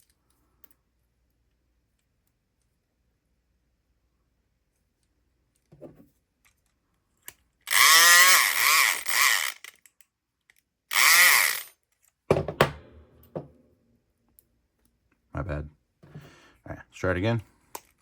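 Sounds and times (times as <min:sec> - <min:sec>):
electric pick gun buzzing: 0:07.7 - 0:09.7, 0:10.9 - 0:11.7.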